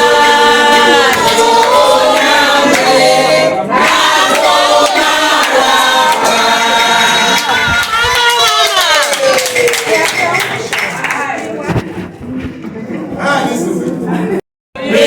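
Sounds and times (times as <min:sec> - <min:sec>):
group singing unaccompanied: 0:00.0 - 0:09.0, 0:14.8 - 0:15.0.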